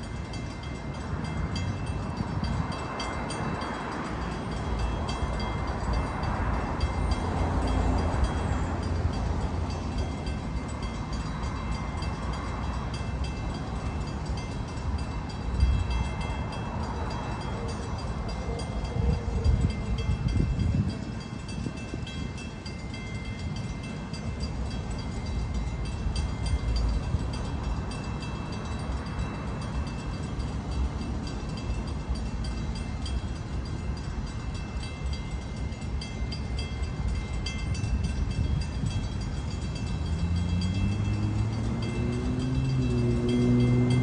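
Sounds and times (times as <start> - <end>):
distant train rumbling: 0.0 - 44.0
steady high ringing: 0.0 - 44.0
low engine note rising: 40.0 - 44.0.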